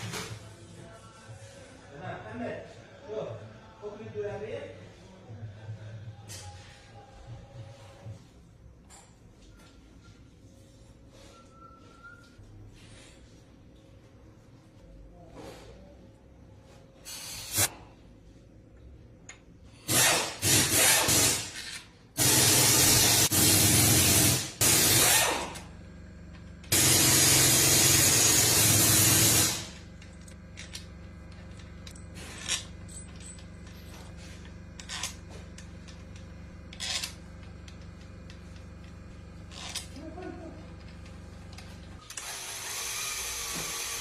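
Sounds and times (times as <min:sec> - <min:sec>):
power tool running: 0:19.8 - 0:21.6, 0:22.2 - 0:39.9, 0:40.8 - 0:44.0
steady low hum: 0:24.2 - 0:42.3.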